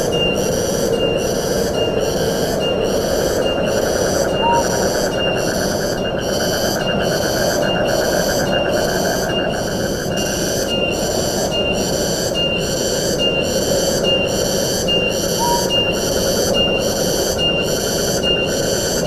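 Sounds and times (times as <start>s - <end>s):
wind through trees: 0.0s - 19.0s
pulsing high buzzing call: 3.4s - 5.6s, 14.2s - 18.7s
short high note: 15.4s - 16.0s.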